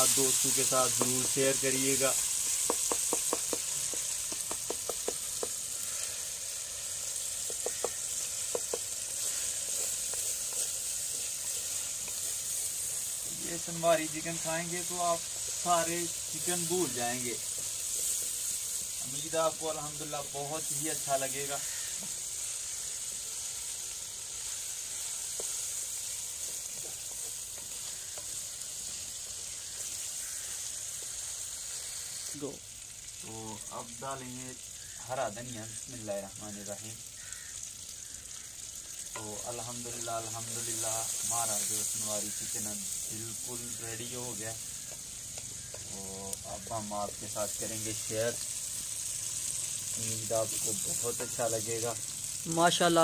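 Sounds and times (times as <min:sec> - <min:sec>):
curry sizzling in a pan: 0:00.0 - 0:53.0
wooden spatula tapping a pan: 0:00.9 - 0:01.4, 0:02.4 - 0:05.7, 0:07.3 - 0:12.4, 0:24.9 - 0:29.0, 0:44.9 - 0:45.9
wooden spoon stirring: 0:06.4 - 0:19.3, 0:22.3 - 0:31.4.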